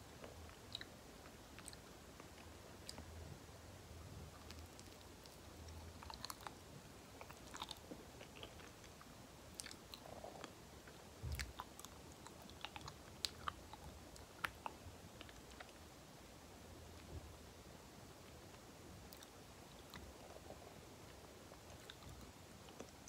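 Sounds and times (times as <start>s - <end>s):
chewing with wet mouth sounds: 0.2s - 3.2s, 4.4s - 6.6s, 7.2s - 15.8s, 21.6s - 23.0s.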